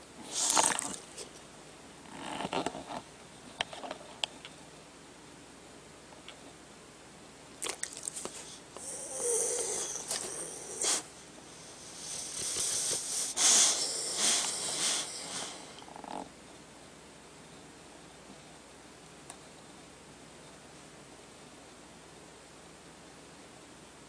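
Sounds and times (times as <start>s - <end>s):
dog snoring: 8.4s - 16.3s.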